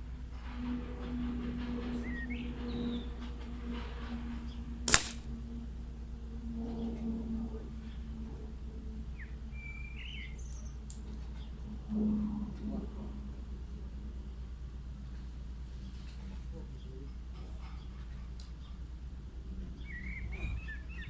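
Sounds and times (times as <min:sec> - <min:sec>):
air rifle shot: 0:04.9 - 0:05.4
birds chirping: 0:09.0 - 0:11.6, 0:19.6 - 0:21.0.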